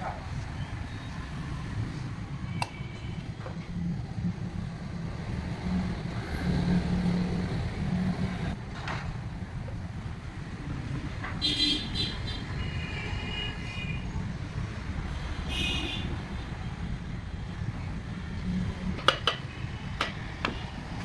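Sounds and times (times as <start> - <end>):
sharp click: 2.6 - 2.8.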